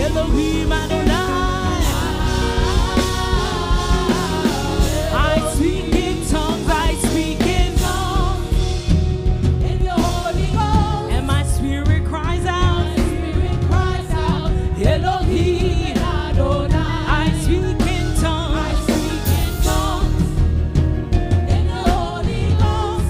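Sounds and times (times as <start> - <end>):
person singing with vibrato: 0.0 - 8.8
band playing gospel music: 0.0 - 23.0.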